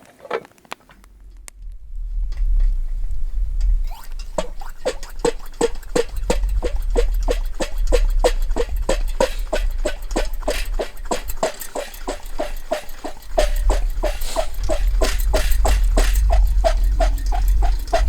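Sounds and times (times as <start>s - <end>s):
low hum: 0.9s - 18.0s
rhythmic hollow ringing knocks: 3.6s - 18.0s.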